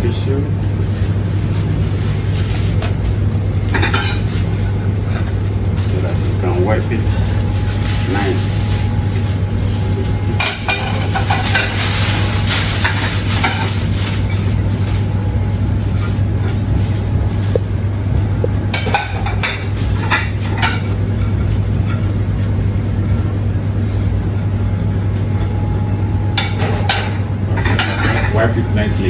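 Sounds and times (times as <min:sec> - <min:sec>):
kitchen machinery hum and hiss: 0:00.0 - 0:29.0
plates and cutlery clattering: 0:01.4 - 0:15.1, 0:18.7 - 0:22.5, 0:26.4 - 0:29.0.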